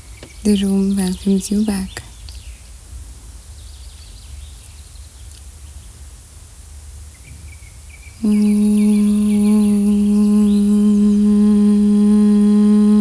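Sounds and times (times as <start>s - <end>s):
birds chirping faintly: 0.0s - 2.8s, 3.5s - 6.0s, 7.2s - 13.0s
low steady rumble: 0.0s - 13.0s
loud held tone with overtones: 8.2s - 13.0s.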